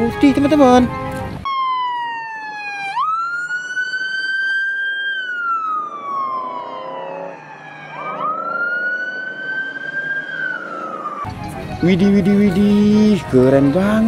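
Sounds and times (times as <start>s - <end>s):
police siren wailing: 1.4s - 11.4s.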